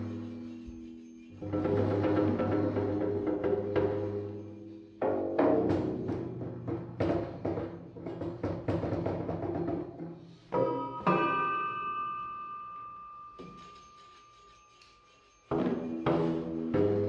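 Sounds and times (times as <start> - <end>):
percussion strikes with ringing: 10.3 - 17.0.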